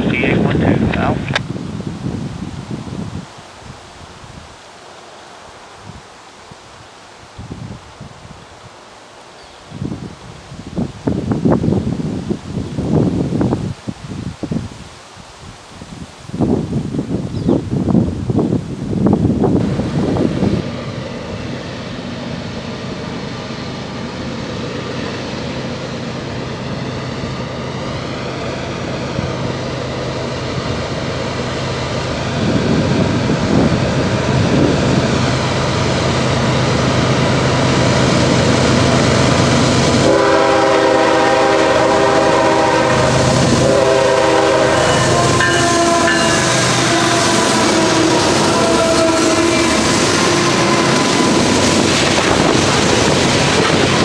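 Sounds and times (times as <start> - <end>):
diesel locomotive engine drone: 0.0 - 3.2, 16.8 - 54.0
locomotive horn: 39.8 - 51.8.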